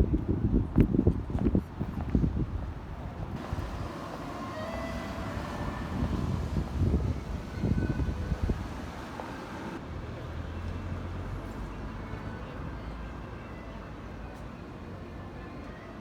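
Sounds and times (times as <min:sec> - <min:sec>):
wind buffeting microphone: 0:00.0 - 0:09.8
city traffic rumble: 0:00.0 - 0:16.0.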